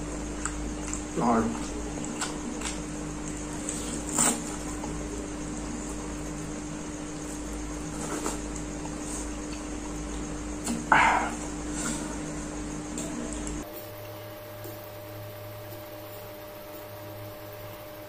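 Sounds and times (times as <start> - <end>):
person chewing: 0.0 - 6.5, 7.2 - 12.3
steady low hum: 0.0 - 18.0.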